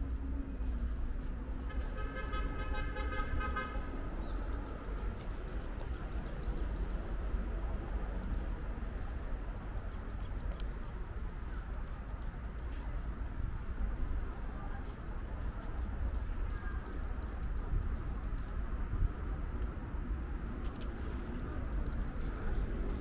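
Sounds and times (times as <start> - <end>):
steady low rumble: 0.0 - 2.6.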